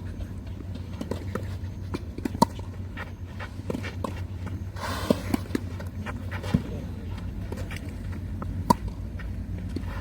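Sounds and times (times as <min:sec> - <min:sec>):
footsteps on tennis court: 0:00.0 - 0:10.0.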